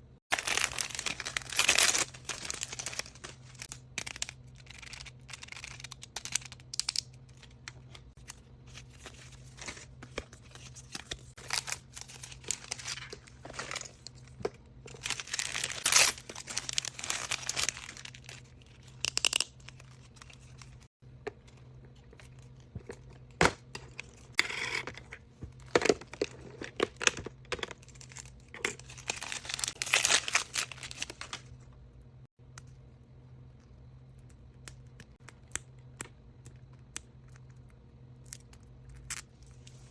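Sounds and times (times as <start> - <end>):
wrapping paper tearing and crinkling: 0.3 - 6.0, 10.7 - 14.0, 14.9 - 18.5, 28.0 - 31.4.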